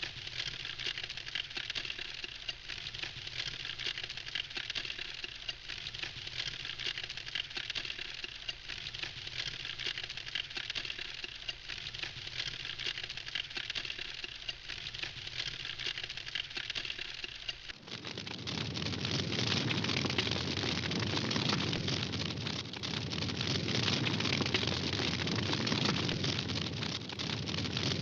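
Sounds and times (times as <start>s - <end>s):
campfire crackling: 4.8s - 28.0s.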